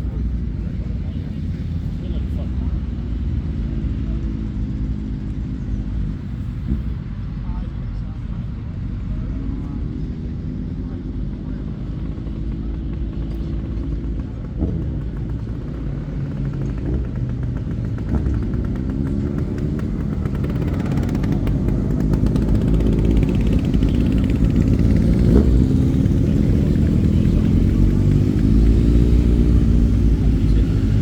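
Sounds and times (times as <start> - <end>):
motorcycle engines running: 0.0 - 31.0
motorcycle throttle blips: 9.0 - 31.0.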